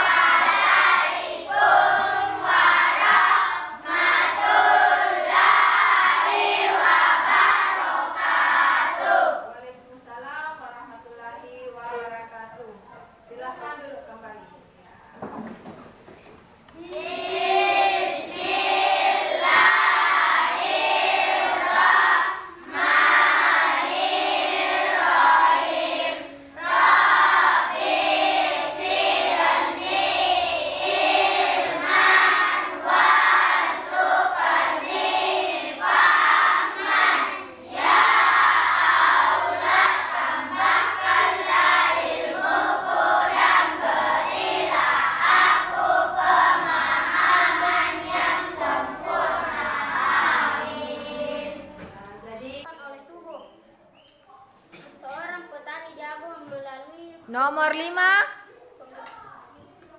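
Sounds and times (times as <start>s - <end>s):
children speaking in unison: 16.8s - 52.0s.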